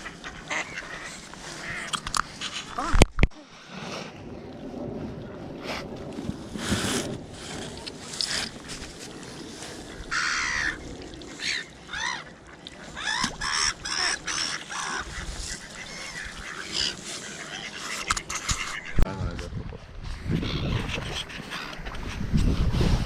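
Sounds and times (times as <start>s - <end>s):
geese honking: 0.0s - 1.9s, 10.1s - 10.8s.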